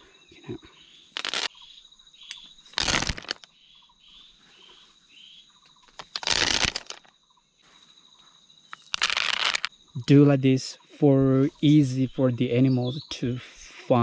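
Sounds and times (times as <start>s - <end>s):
high insect drone: 0.0s - 13.1s
dried corn rustling onto leaves: 1.2s - 1.5s, 2.7s - 3.5s, 5.9s - 7.1s, 8.7s - 9.7s.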